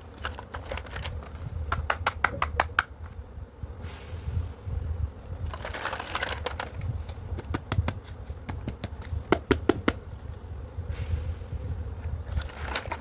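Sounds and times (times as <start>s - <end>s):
rustling: 5.4s - 7.2s, 12.2s - 13.0s.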